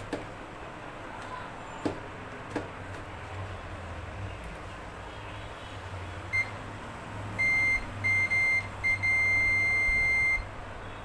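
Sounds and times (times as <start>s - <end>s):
multimeter continuity beeps: 6.3s - 6.6s, 7.4s - 10.5s.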